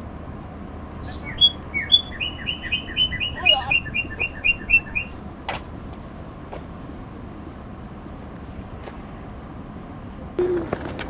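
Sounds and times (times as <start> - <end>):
songbird singing: 0.0 - 6.2.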